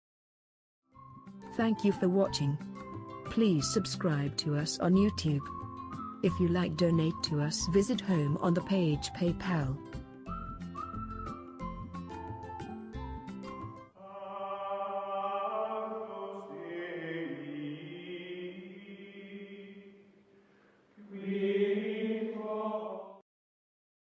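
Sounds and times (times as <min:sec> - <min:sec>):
held chant-like chords: 0:14.0 - 0:20.1, 0:21.0 - 0:23.2.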